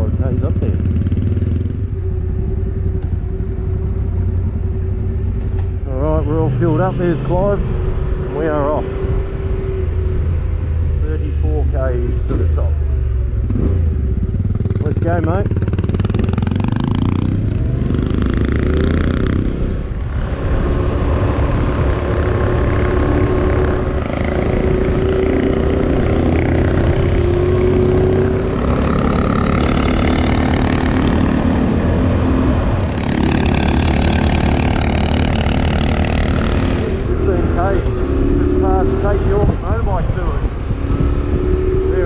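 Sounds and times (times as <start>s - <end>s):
motorcycle engine running: 0.0s - 11.2s, 12.7s - 42.0s.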